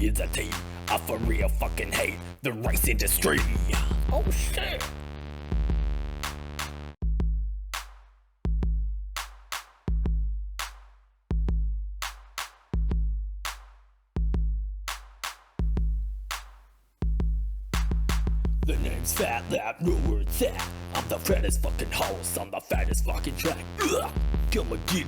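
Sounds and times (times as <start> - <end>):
sharp snare or clap hits: 3.4 - 4.1, 6.2 - 7.0, 9.2 - 9.9, 10.6 - 11.0, 12.0 - 12.7, 13.5 - 13.8, 14.9 - 15.6, 17.8 - 18.4.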